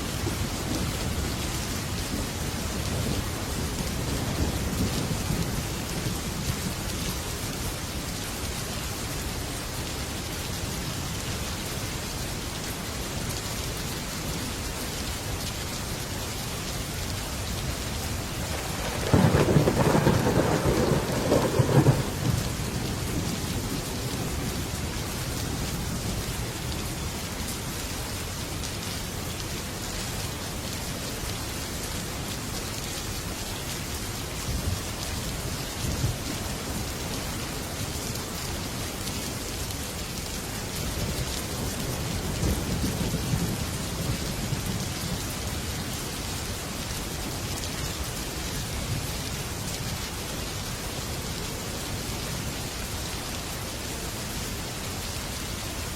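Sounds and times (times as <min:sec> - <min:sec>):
heavy rain on metal roof: 0:00.0 - 0:55.9
thunder clap rumbling: 0:18.5 - 0:23.4.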